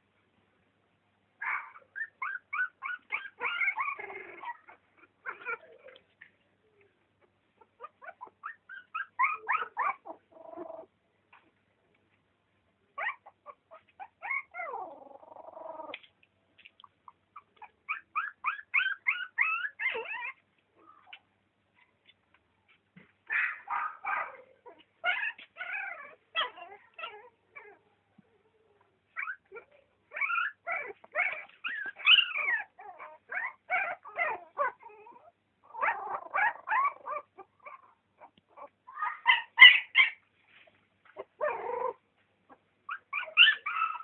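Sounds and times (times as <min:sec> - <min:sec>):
newborn animals squeaking: 0:01.4 - 0:06.0, 0:07.6 - 0:10.9, 0:13.0 - 0:16.0, 0:16.9 - 0:21.3, 0:23.3 - 0:27.9, 0:29.1 - 0:40.3, 0:41.0 - 0:44.0.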